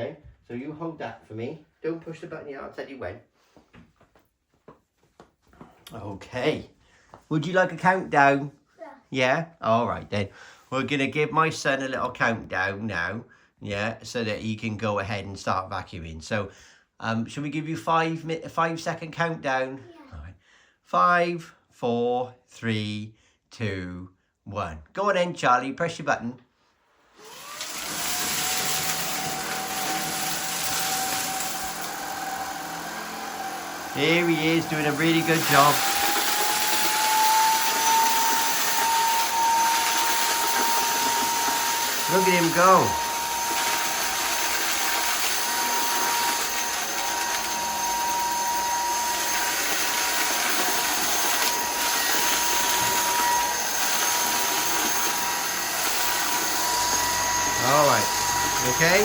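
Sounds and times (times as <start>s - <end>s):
vacuum cleaner running: 27.2s - 59.0s.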